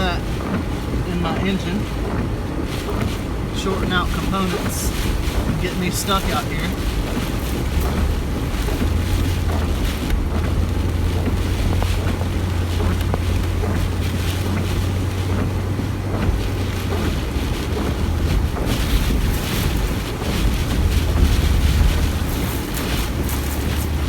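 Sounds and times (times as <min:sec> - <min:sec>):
car engine and road drone: 0:00.0 - 0:24.0
water sloshing and splashing: 0:00.0 - 0:24.0
wind buffeting microphone: 0:00.0 - 0:24.0.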